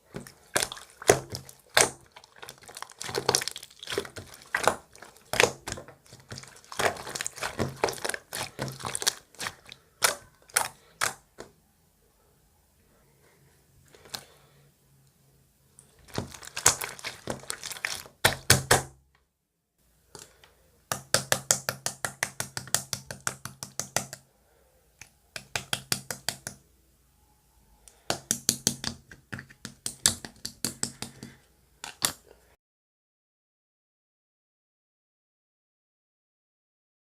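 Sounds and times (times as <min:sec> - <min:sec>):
slime crackling and popping: 0:00.1 - 0:11.4, 0:16.0 - 0:18.9.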